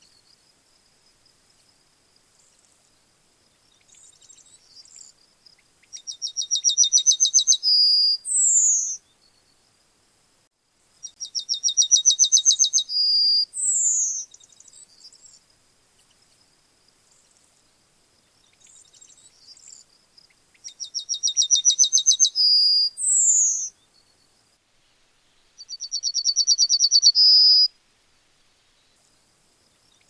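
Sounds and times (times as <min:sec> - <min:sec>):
faint bird chirps: 0:00.0 - 0:00.5, 0:01.1 - 0:09.8, 0:10.9 - 0:27.8, 0:28.4 - 0:30.0
yellowhammer singing: 0:03.7 - 0:09.6, 0:11.0 - 0:15.4, 0:18.4 - 0:24.3, 0:25.5 - 0:27.7.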